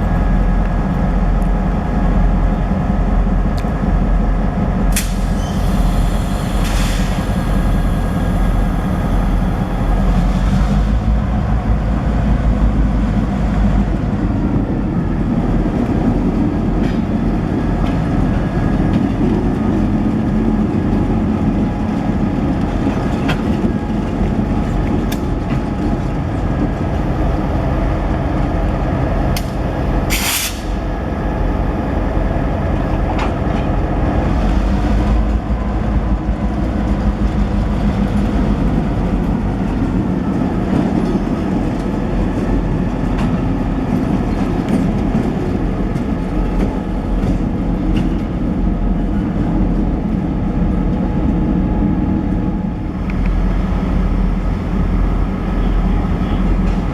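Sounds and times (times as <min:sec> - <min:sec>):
diesel locomotive engine: 0:00.0 - 0:56.9
railcars rumbling on rails: 0:00.0 - 0:56.9
air brake hiss: 0:05.0 - 0:09.0, 0:29.4 - 0:30.8.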